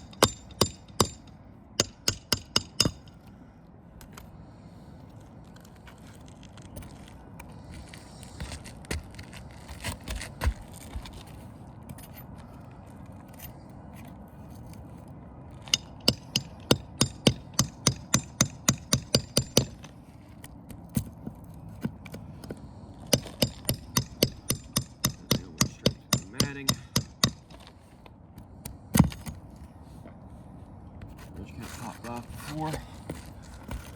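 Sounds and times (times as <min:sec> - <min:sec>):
hammer blows on roof shingles: 0:15.6 - 0:19.9, 0:20.9 - 0:27.7.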